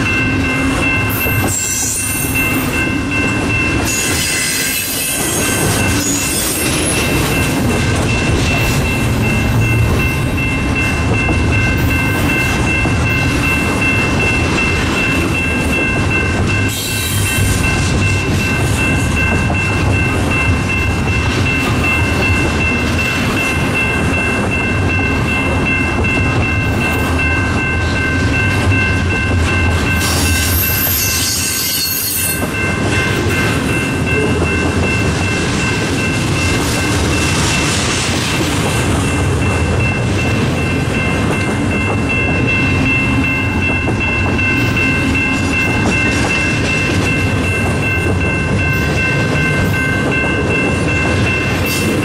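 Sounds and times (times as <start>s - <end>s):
constant train rumble: 0.0s - 52.0s
high-pitched wheel squeal: 30.0s - 32.4s.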